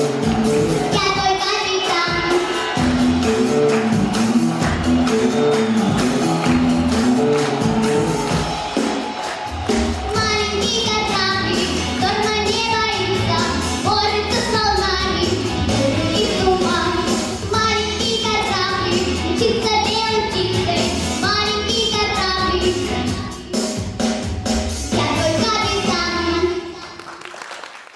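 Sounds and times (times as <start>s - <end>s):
backing track with bass beat: 0.0s - 1.3s, 2.1s - 13.9s
child singing: 0.9s - 2.8s, 10.1s - 23.6s, 24.9s - 27.2s.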